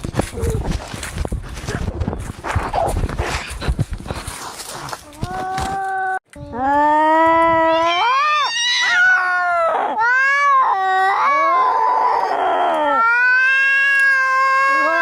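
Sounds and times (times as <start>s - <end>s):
cats yowling in a fight: 7.1s - 15.0s.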